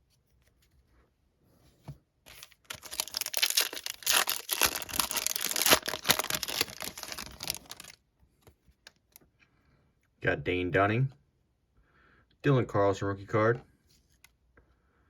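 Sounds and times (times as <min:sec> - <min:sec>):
foil wrapper tearing and crinkling: 0:02.3 - 0:08.0.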